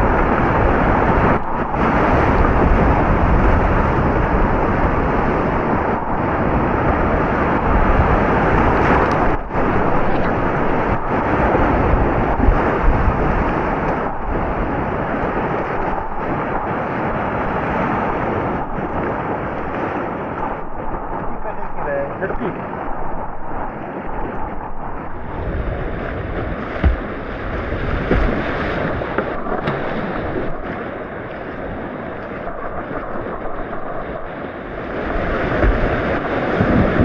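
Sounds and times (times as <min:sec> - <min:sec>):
whitewater rushing: 0:25.1 - 0:37.0.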